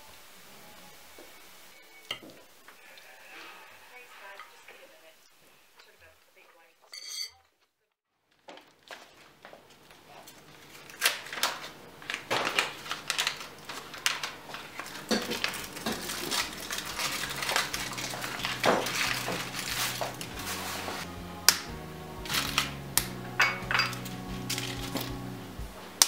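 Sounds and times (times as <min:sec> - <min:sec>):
dishes and cutlery clinking: 0:06.9 - 0:07.5, 0:15.0 - 0:20.3, 0:23.4 - 0:25.0.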